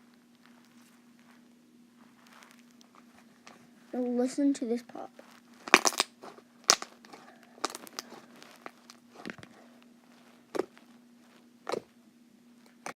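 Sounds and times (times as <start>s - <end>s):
faint steady hum: 0.0s - 13.0s
slime popping: 5.6s - 9.0s.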